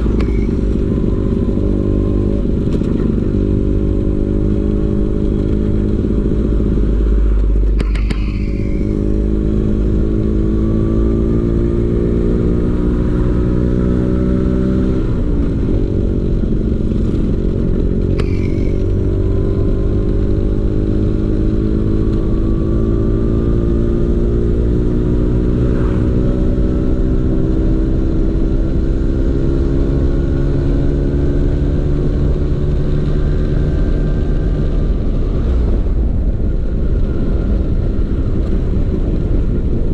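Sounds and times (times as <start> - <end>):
scooter engine running: 0.0 - 10.2, 15.3 - 19.2
low rumble: 0.0 - 14.1, 15.0 - 21.0, 22.1 - 28.6.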